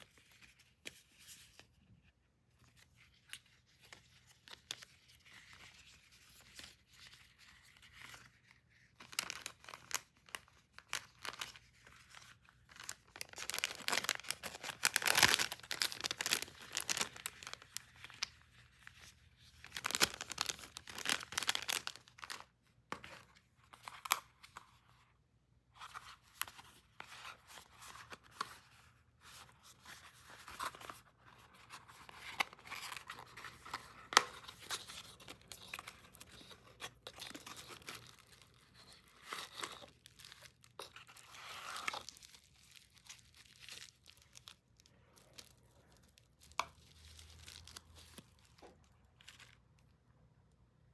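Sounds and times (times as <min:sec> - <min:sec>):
packaging tearing and rustling: 0:09.0 - 0:18.4, 0:19.6 - 0:22.5, 0:31.6 - 0:49.6.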